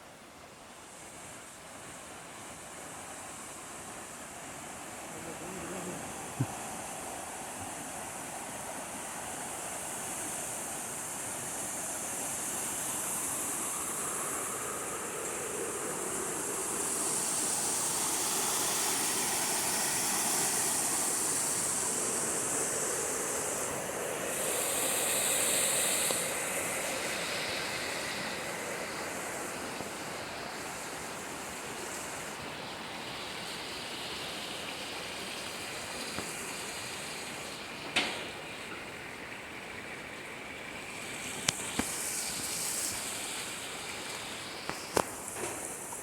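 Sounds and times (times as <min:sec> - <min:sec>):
high hiss: 0:00.0 - 0:46.0
running water rushing: 0:00.2 - 0:46.0.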